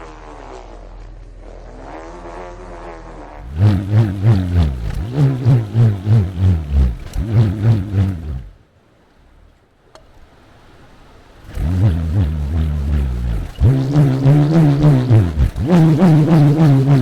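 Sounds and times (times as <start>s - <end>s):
bull roarer buzzing drone: 3.4s - 8.6s, 11.4s - 17.0s.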